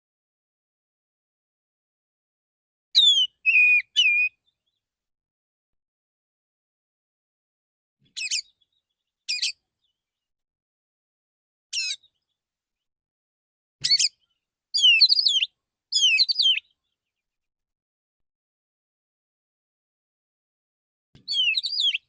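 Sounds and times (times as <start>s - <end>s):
bird singing whistled phrases: 3.0s - 4.4s, 14.8s - 16.7s, 21.2s - 22.0s.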